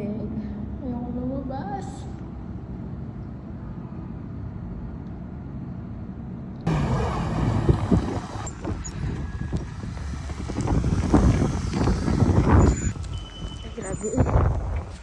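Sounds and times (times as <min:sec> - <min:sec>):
gusty wind on microphone: 0:06.7 - 0:15.0.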